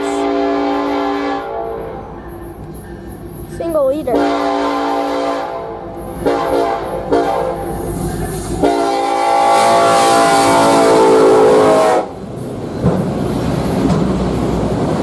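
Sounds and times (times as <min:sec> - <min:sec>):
train air horn blasts: 0:00.0 - 0:02.2, 0:04.1 - 0:08.0, 0:08.6 - 0:12.2
low rumble of train: 0:00.0 - 0:15.0.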